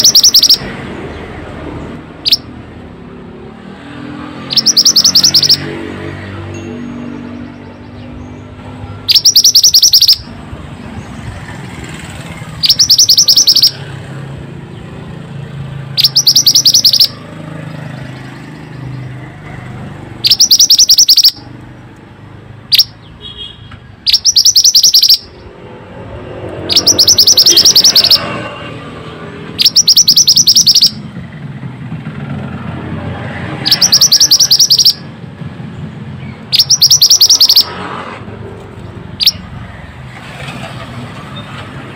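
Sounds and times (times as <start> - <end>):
bird rapid trill: 0.0 - 0.8, 2.2 - 2.5, 4.3 - 6.0, 9.0 - 10.4, 12.4 - 13.9, 15.8 - 19.2, 20.2 - 21.5, 22.7 - 23.3, 24.0 - 25.6, 26.6 - 28.5, 29.6 - 31.1, 33.6 - 35.1, 36.2 - 37.9, 39.1 - 39.5.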